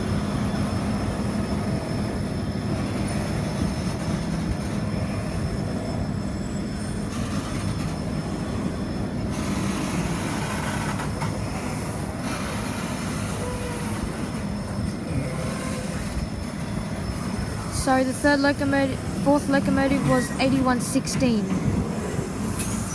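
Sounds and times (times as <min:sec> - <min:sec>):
train wagons rumbling on rails: 0:00.0 - 0:22.9
faint wheel squeal: 0:04.9 - 0:17.7.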